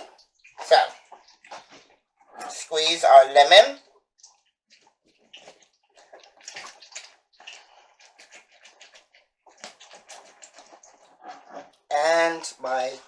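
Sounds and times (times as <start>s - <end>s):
fruit squelching: 0.0s - 2.9s, 3.6s - 11.8s
juice dripping: 0.0s - 13.0s.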